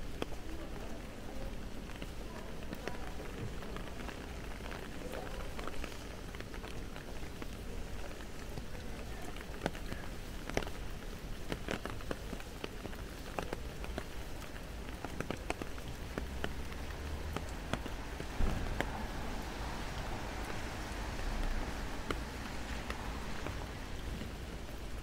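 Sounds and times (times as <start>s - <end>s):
rain on wet pavement: 0.0s - 25.0s
sharp rain taps: 0.0s - 25.0s.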